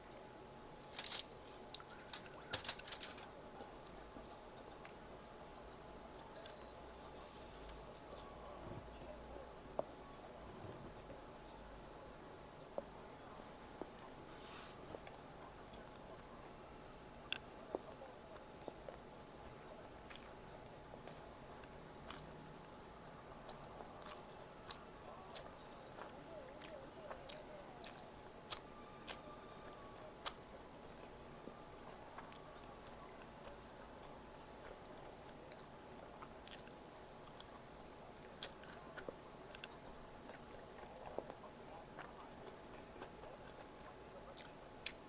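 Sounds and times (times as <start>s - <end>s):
person chewing food: 20.0s - 22.8s, 23.4s - 31.2s, 31.8s - 45.0s.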